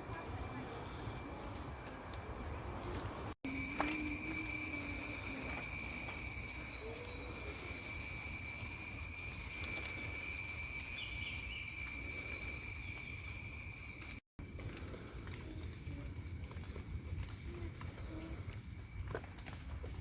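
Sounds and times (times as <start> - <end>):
shrill insect chorus: 3.5 - 14.2.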